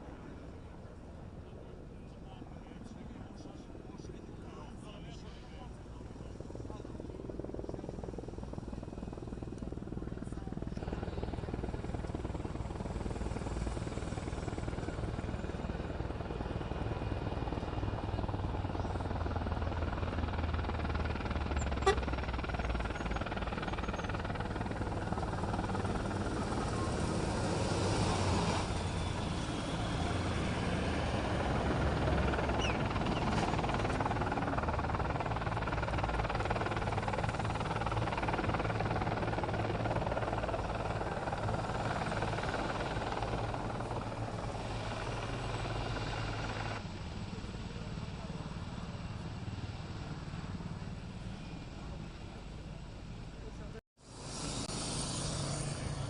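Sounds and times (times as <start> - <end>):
helicopter droning: 0.0 - 56.0.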